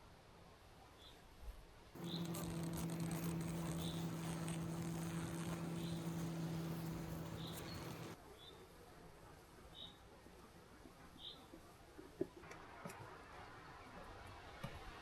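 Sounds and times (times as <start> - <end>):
honeybees buzzing: 2.0 - 8.2
light crackling: 2.0 - 8.2.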